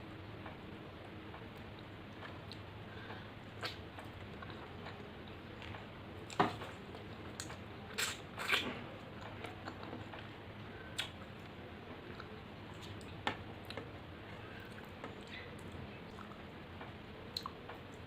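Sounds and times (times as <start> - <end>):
person chewing: 3.6 - 8.6.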